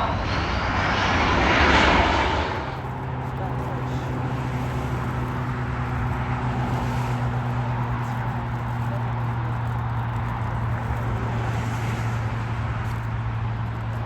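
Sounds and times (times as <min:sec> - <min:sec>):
jet engines droning roar: 0:00.0 - 0:14.0.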